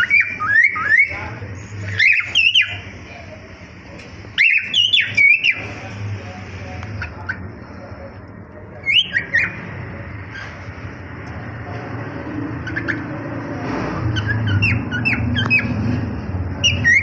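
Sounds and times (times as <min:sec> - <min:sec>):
cockatiels whistled calls: 0:00.0 - 0:02.8, 0:04.4 - 0:05.7, 0:08.8 - 0:09.6, 0:14.1 - 0:15.8, 0:16.6 - 0:17.0.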